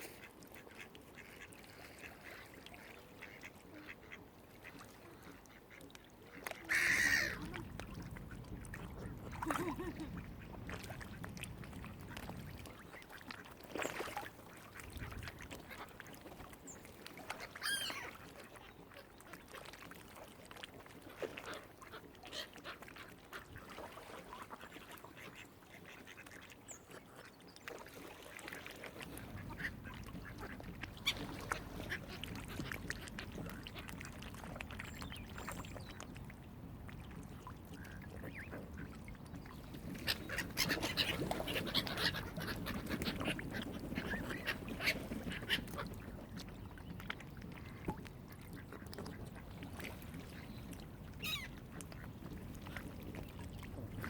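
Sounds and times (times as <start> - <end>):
waterfowl calling: 0.0 - 7.7, 17.4 - 18.2, 39.8 - 46.0, 51.2 - 51.6.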